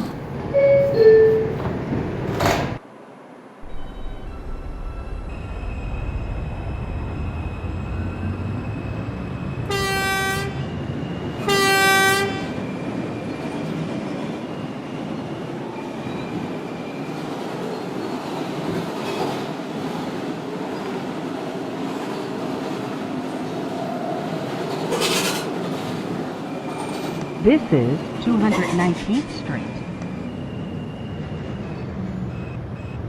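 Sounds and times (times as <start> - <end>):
subway train running on track: 0.0 - 33.0
train horn blasts: 9.7 - 10.6, 11.4 - 12.5.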